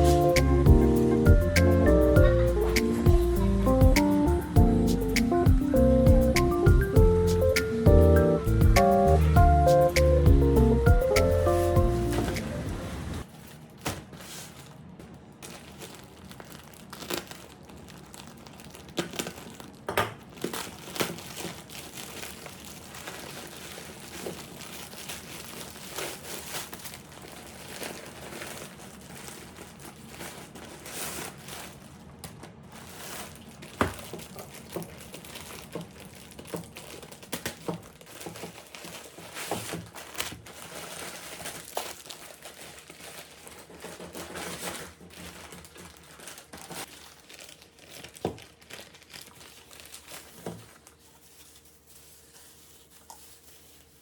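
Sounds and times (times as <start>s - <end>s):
packaging crinkling and rustling: 9.2s - 54.0s
packaging tearing: 13.2s - 54.0s.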